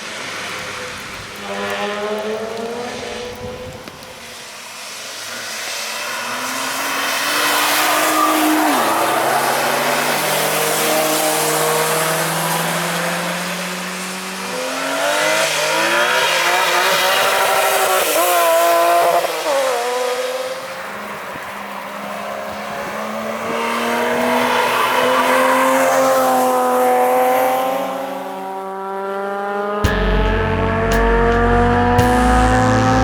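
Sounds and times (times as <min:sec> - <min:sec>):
cars passing at speed: 0:00.0 - 0:33.0.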